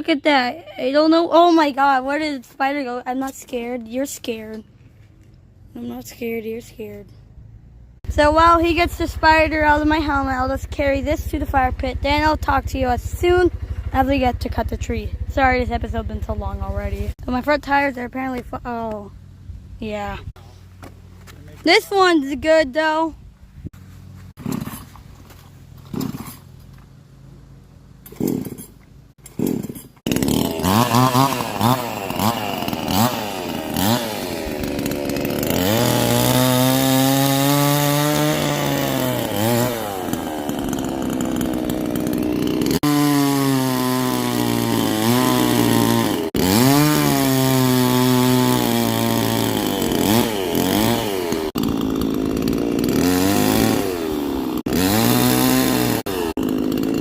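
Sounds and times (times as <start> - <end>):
chainsaw cutting wood: 24.3 - 26.8, 28.0 - 57.0.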